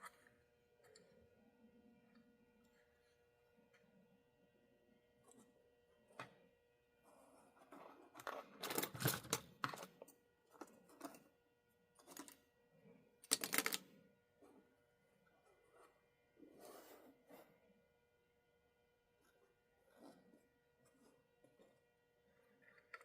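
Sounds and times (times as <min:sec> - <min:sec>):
rustling and scraping: 0:15.5 - 0:17.6.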